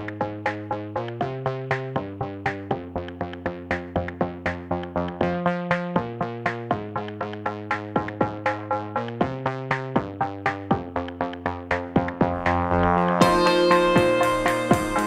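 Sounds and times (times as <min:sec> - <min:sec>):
synthesizer plucked notes: 0:00.0 - 0:15.0
held low synth notes: 0:08.3 - 0:15.0.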